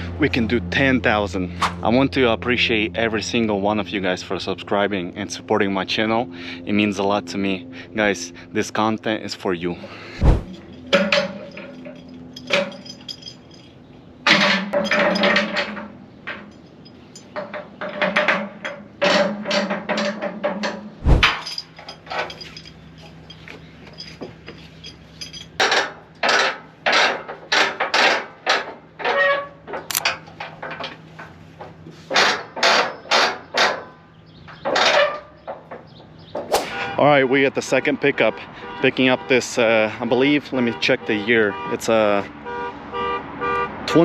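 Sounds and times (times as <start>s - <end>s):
metallic clanks and knocks: 10.4s - 36.9s.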